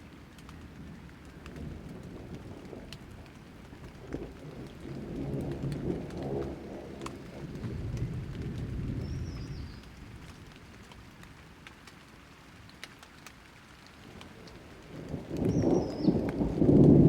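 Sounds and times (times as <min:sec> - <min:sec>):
light rain: 0:00.0 - 0:17.0
thunder rumbling: 0:00.8 - 0:10.6, 0:14.2 - 0:17.0.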